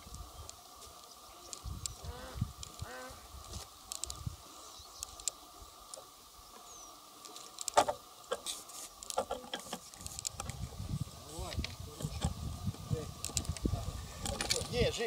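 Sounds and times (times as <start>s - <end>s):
sharp clicks and light knocks: 7.2s - 10.6s, 13.2s - 14.8s.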